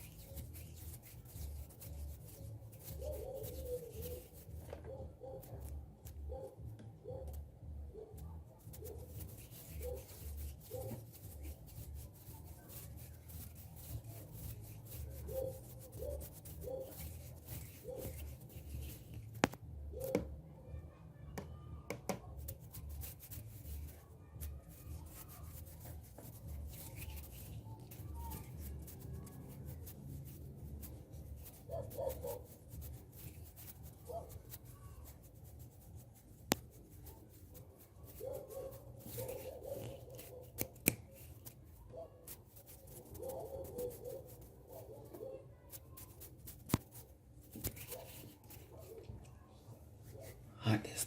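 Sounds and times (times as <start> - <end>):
hands rubbing and brushing: 0.0 - 6.6, 7.3 - 20.2, 22.3 - 50.5.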